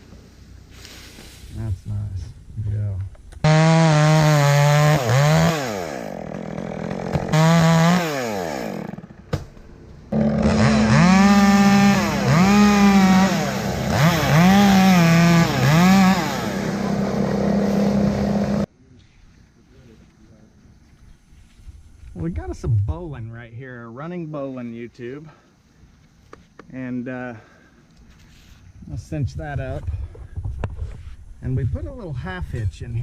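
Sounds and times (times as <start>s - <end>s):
chainsaw engine revving: 3.4s - 9.4s, 10.1s - 18.7s.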